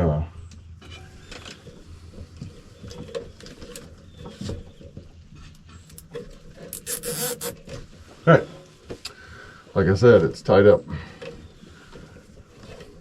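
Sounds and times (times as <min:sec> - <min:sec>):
electrical cords rustling and clicking: 0:01.2 - 0:08.2, 0:11.2 - 0:13.0
zip tie rasping: 0:06.7 - 0:07.6.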